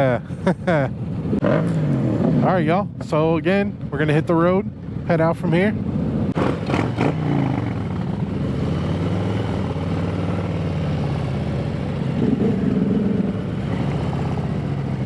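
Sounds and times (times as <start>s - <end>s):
motorcycle engines pulling away: 5.8s - 15.0s.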